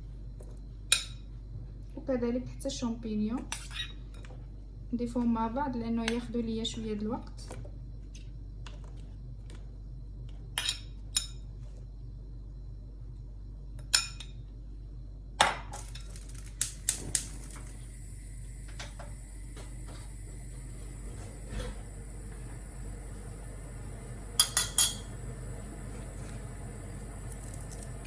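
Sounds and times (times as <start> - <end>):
steady low hum: 0.0 - 28.0
vegetables frying in oil: 15.8 - 20.1, 23.0 - 28.0.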